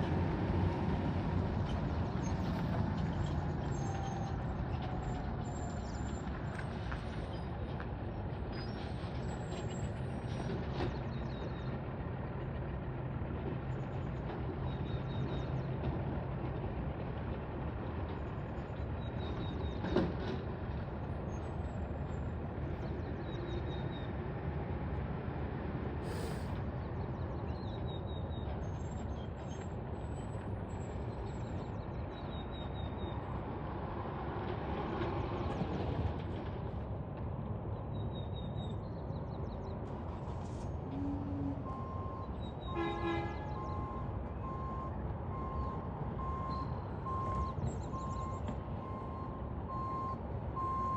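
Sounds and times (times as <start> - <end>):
reversing alarm beeping: 43.6 - 50.9.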